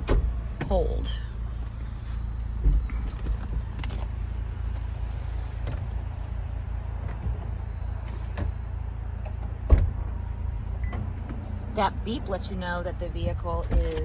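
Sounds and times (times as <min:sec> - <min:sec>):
motor hum of folding roof: 0:00.0 - 0:11.6.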